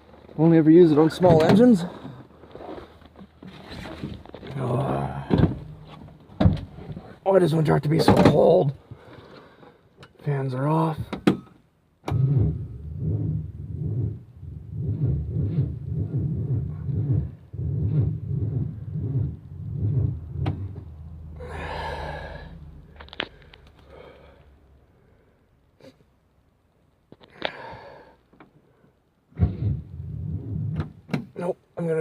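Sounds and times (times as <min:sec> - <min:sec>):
engine cranking slowly: 0:12.2 - 0:24.5
breathy hiss: 0:21.2 - 0:26.1, 0:27.3 - 0:29.0.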